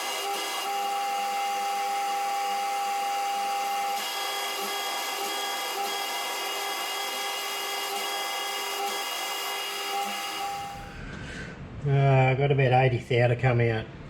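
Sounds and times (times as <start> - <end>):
lathe boring bar squealing: 0.0 - 10.9.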